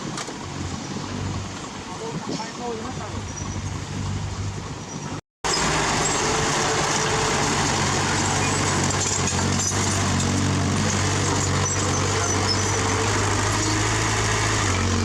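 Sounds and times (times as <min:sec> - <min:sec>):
heavy diesel engine drone: 0:05.4 - 0:15.0.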